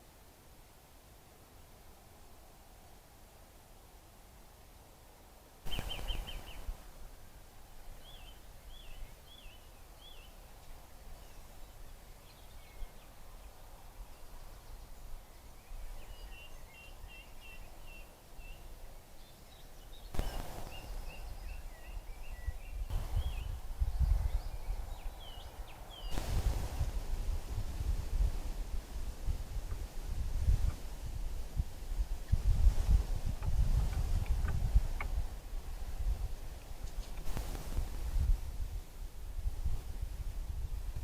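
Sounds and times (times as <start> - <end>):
songbirds chirping: 0.0 - 27.2
outdoor background noise: 0.0 - 41.0.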